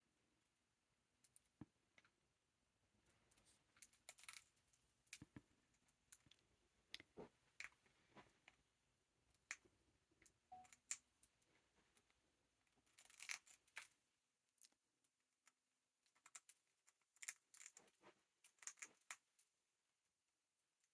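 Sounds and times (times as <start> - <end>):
beak nibbling bread clicks: 18.5 - 19.2.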